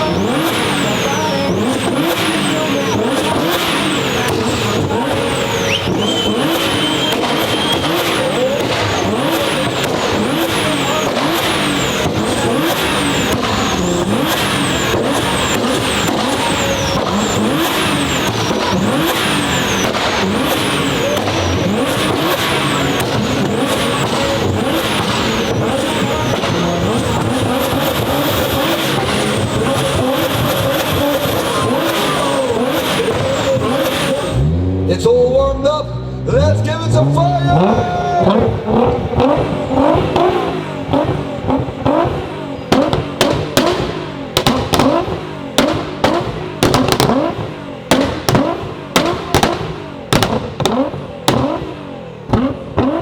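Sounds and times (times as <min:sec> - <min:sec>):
constant loud din: 0:00.0 - 0:53.0
sports car engines revving: 0:00.0 - 0:53.0
high falling whistles: 0:05.5 - 0:08.2.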